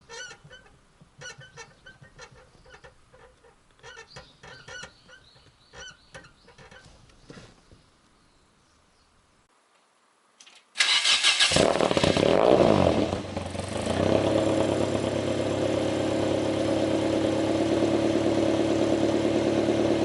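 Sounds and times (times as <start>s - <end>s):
clutch pedal squeaking: 0.0s - 7.3s.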